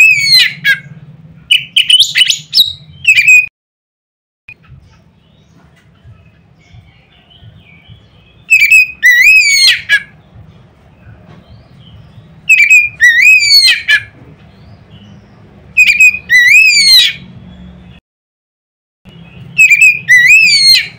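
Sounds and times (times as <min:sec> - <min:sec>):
magpie-robin singing whistled phrases: 0:00.0 - 0:00.9, 0:01.5 - 0:03.5, 0:06.6 - 0:10.1, 0:11.5 - 0:18.0, 0:19.1 - 0:20.9.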